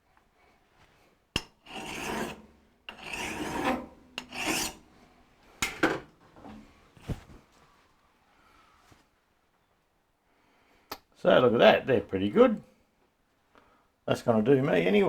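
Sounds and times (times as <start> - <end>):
rasping strokes on metal: 1.4 - 4.9.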